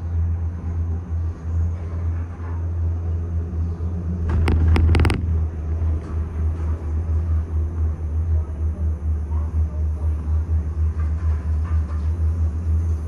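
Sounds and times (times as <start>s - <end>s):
gondola cabin rumble: 0.0s - 13.0s
rapid clatter of clicks: 4.3s - 5.3s.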